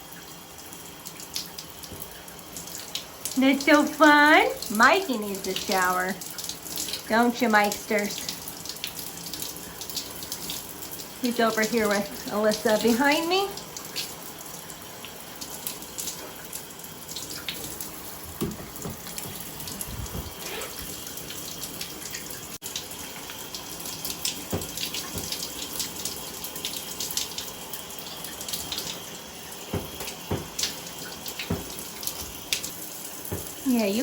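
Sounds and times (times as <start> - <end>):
shower water spraying: 1.2 - 34.0.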